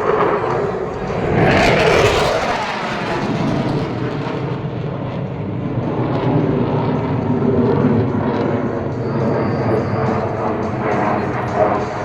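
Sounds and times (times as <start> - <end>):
fighter jets roaring: 0.0 - 5.0.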